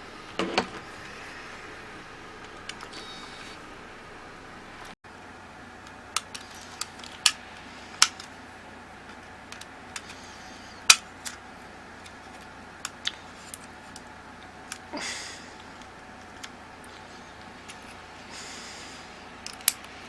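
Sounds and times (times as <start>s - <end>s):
faint hiss: 0.0s - 20.0s
small tools clicking and tapping: 19.4s - 20.0s.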